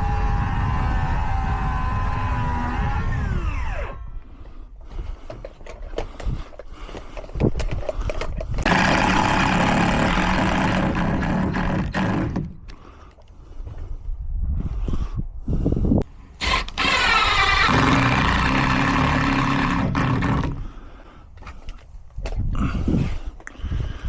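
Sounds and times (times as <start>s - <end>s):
power tool motor running: 8.6s - 12.5s, 16.4s - 20.6s.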